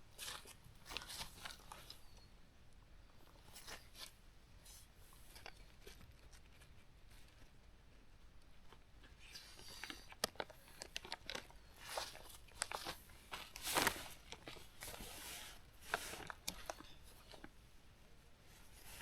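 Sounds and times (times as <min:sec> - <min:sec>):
nylon fabric rustling: 0:11.8 - 0:16.3.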